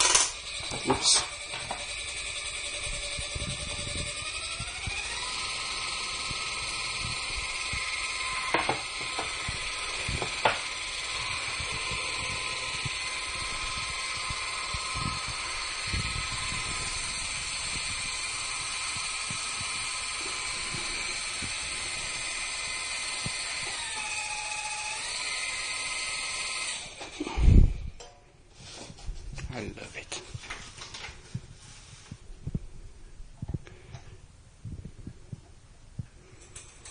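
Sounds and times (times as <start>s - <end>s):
rc helicopter motor whine: 0.0s - 27.6s.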